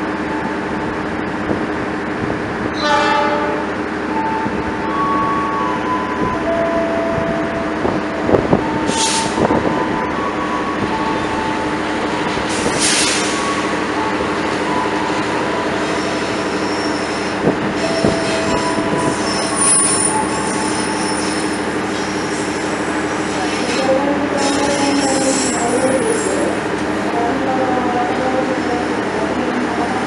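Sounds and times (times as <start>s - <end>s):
train running on track: 0.0s - 30.0s
wheels squealing against rails: 8.6s - 11.6s, 12.4s - 26.7s.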